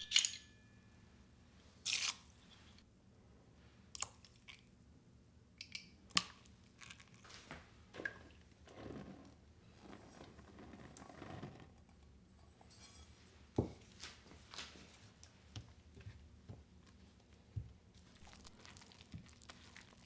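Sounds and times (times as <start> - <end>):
kitchen items clicking and knocking: 0.0 - 0.7.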